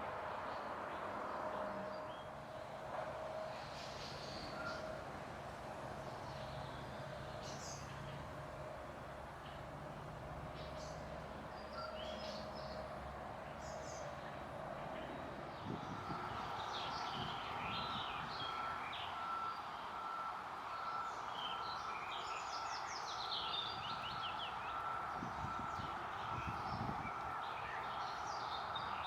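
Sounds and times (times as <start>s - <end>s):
city background hum: 0.0s - 29.0s
songbirds chirping: 6.0s - 29.0s.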